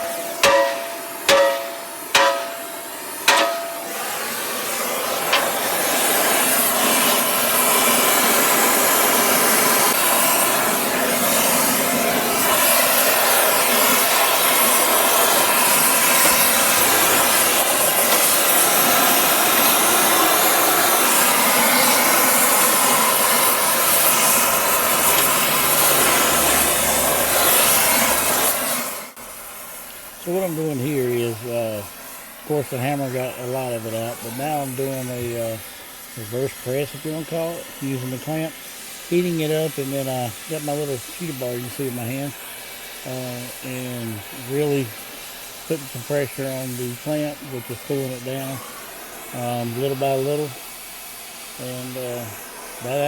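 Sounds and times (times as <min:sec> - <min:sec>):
hammer blows on steel: 0:00.0 - 0:04.4, 0:05.1 - 0:07.2
gas torch hissing: 0:00.0 - 0:53.0.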